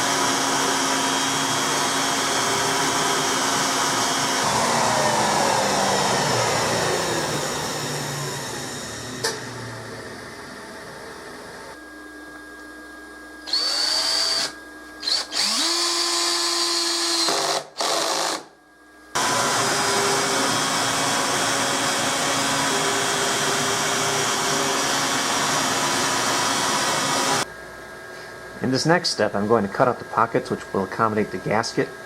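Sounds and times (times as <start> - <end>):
power tool motor spinning: 0.0 - 9.9, 13.5 - 18.5, 19.2 - 27.4.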